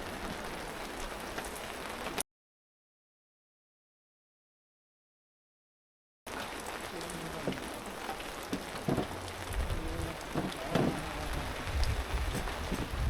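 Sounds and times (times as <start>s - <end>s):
heavy rain falling: 0.0s - 2.2s, 6.3s - 13.0s
raindrops striking surfaces: 0.0s - 2.2s, 6.3s - 13.0s
wind buffeting microphone: 8.8s - 13.0s.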